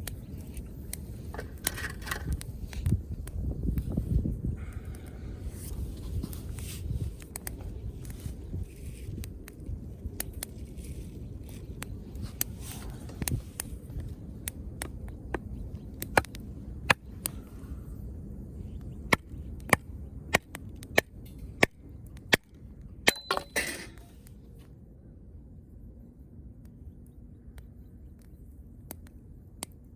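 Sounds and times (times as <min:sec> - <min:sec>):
wood fire crackling: 0:00.0 - 0:23.2
low rumble of fire: 0:00.0 - 0:29.9.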